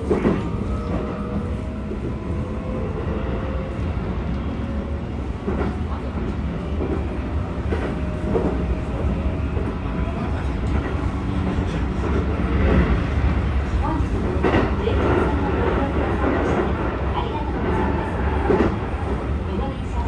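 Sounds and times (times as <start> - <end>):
rail-joint clacks: 0.0 - 1.5, 5.4 - 19.1
train wheels rumbling on rail: 0.0 - 20.0.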